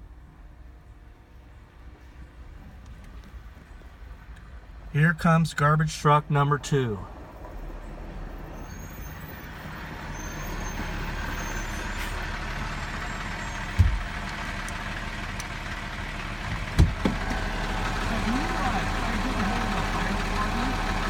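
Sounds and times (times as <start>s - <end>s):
garbage truck engine and road noise: 0.0s - 21.0s
sharp low thumps: 13.7s - 14.2s, 16.4s - 17.3s.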